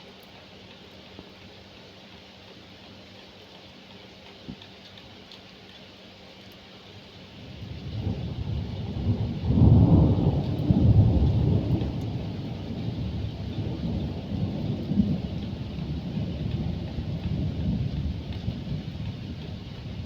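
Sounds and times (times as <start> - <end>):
steady rain: 0.0 - 20.0
thunder rumbling: 7.4 - 20.0.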